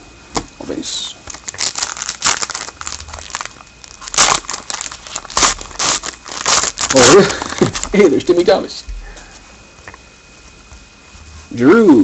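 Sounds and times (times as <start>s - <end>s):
cards rustling: 1.2s - 8.2s
wrapper crinkling: 1.2s - 8.3s.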